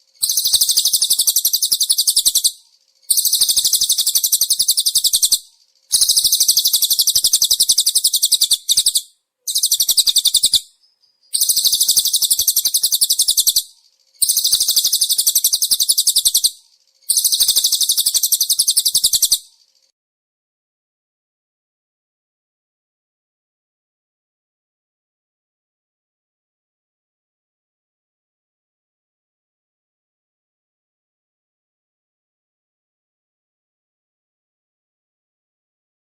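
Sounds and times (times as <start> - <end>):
songbird trilling: 0.1 - 19.9.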